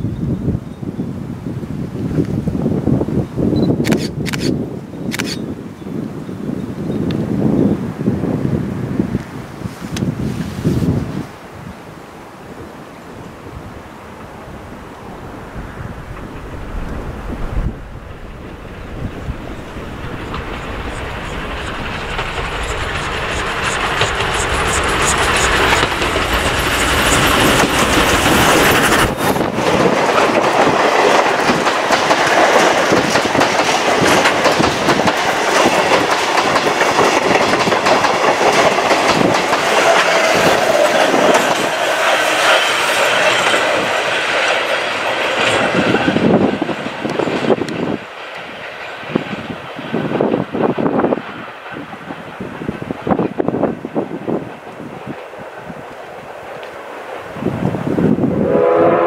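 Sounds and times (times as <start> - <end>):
steam train passing: 6.4 - 59.0
wheels clacking over rail joints: 18.0 - 58.0.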